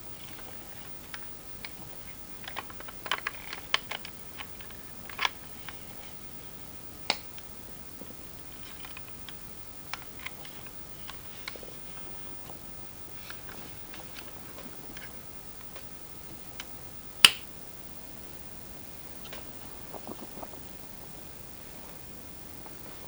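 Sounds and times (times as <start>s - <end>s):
plastic clicks and taps: 16.6s - 17.5s.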